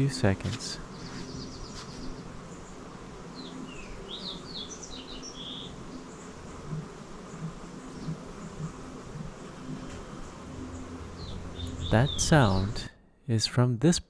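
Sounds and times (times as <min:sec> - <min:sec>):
small bird chirping: 0:03.4 - 0:06.8, 0:10.7 - 0:12.8.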